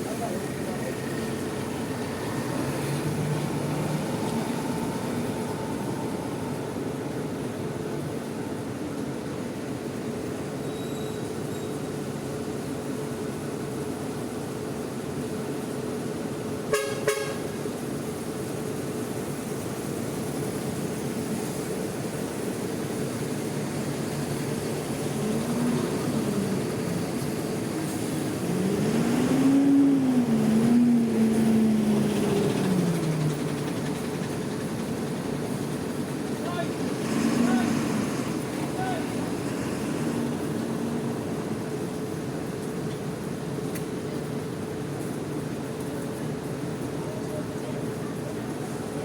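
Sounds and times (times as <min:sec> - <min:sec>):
bus engines running: 0:00.0 - 0:49.0
vehicle horn toots: 0:16.7 - 0:17.6.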